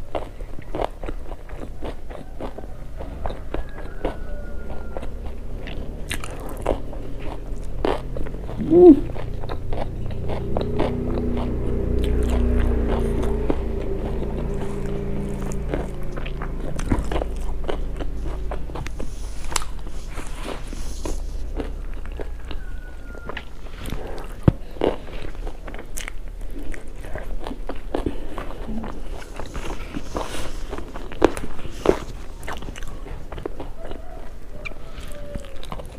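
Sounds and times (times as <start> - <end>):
person chewing food: 0.0 - 35.9
mouth clicks: 8.5 - 9.3.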